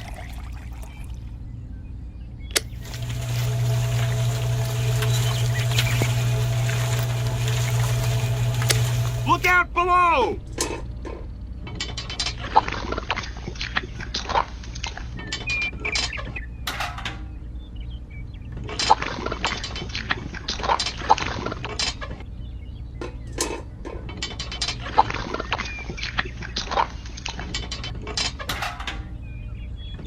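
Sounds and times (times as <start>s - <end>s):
water splashing and pouring: 0.0s - 1.3s, 2.7s - 9.4s
steady low hum: 1.4s - 9.5s.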